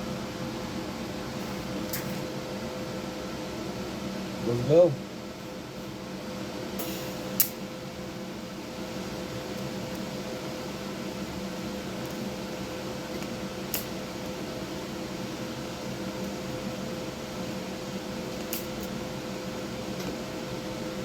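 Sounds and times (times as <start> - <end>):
welder hum and hiss: 0.0 - 21.0.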